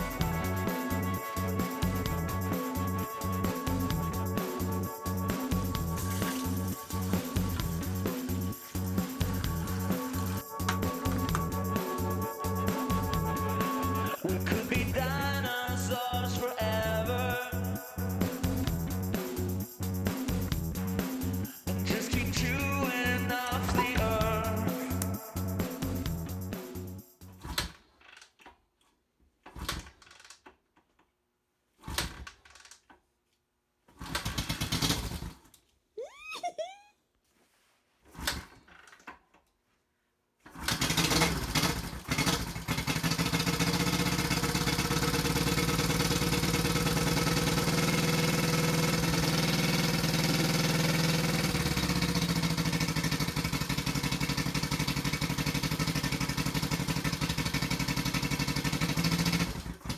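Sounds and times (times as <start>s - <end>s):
motorcycle engine kick starting: 23.5s - 24.4s, 27.4s - 27.8s, 34.0s - 35.5s, 40.5s - 59.9s.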